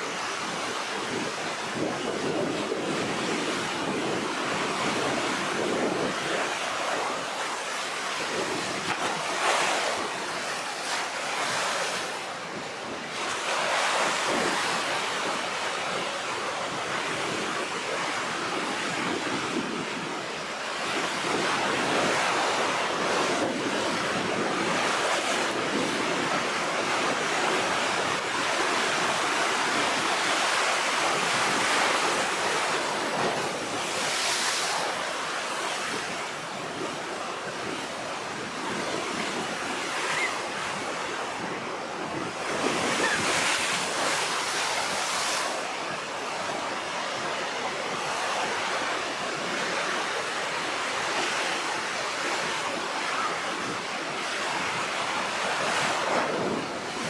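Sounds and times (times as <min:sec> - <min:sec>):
storm sea surf breaking: 0:00.1 - 0:15.3, 0:20.8 - 0:50.4
wind buffeting microphone: 0:35.6 - 0:49.8, 0:55.5 - 0:57.0.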